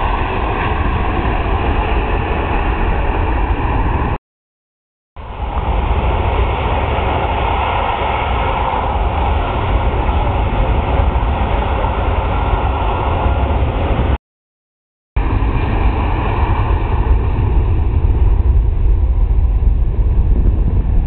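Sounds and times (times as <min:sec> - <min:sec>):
jet engines roaring: 0:00.0 - 0:04.2, 0:05.2 - 0:14.2, 0:15.2 - 0:21.0.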